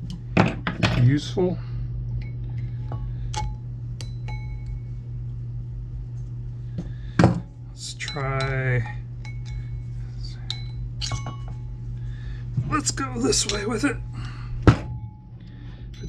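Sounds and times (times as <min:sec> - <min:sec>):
steady low hum: 0:00.0 - 0:16.0
metal tools clicking and clinking: 0:10.4 - 0:11.6.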